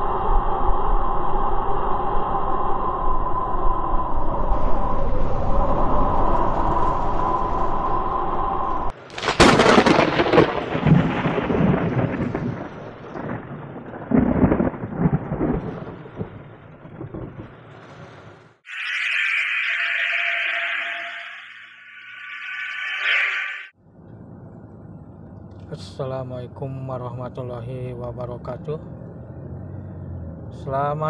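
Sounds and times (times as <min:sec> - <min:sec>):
thunder cracking and rumbling: 0:03.1 - 0:18.6
steady multi-tone drone: 0:18.7 - 0:23.8.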